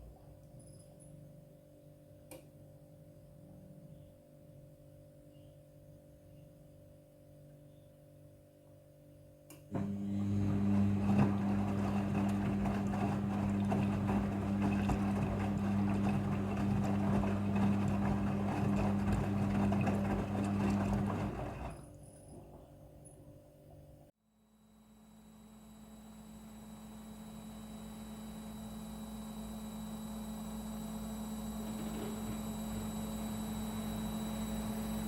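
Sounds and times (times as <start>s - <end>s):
washing machine motor hum: 9.7s - 23.1s, 25.0s - 35.0s.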